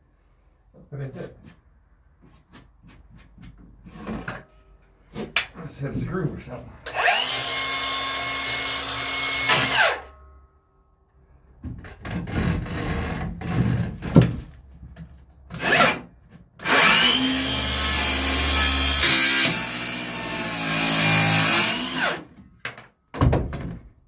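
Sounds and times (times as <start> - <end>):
knocking and scraping: 1.1 - 6.8, 11.6 - 15.3
power saw cutting wood: 6.8 - 10.1, 15.6 - 22.4.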